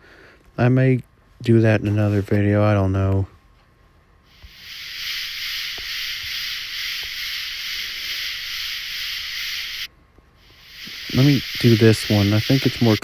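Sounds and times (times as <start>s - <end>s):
katydid hissing buzz: 4.3s - 13.0s.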